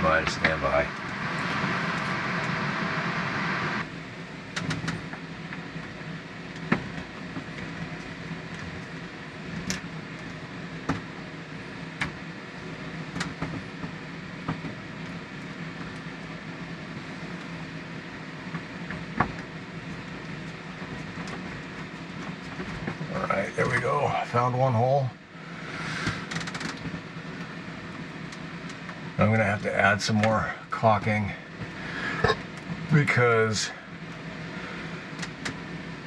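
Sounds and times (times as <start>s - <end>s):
steady low hum: 0.0s - 36.0s
hiss: 25.4s - 26.4s.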